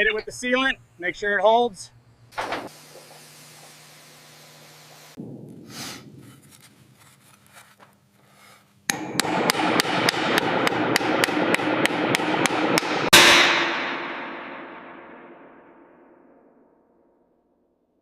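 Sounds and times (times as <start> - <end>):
faint steady hiss: 0.0 - 8.9
rapid hammer strikes: 8.9 - 14.9.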